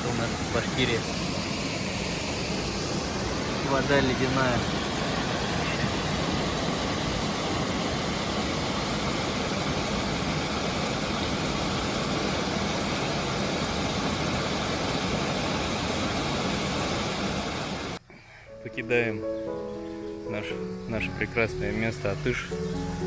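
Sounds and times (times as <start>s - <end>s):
waterfall roar: 2.0s - 18.0s.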